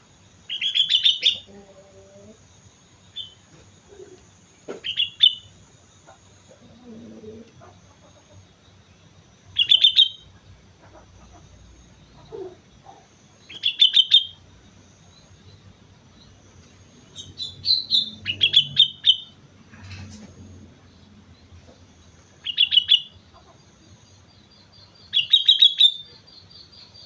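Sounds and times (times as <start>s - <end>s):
bird singing clear notes: 9.6s - 10.4s, 17.1s - 20.3s.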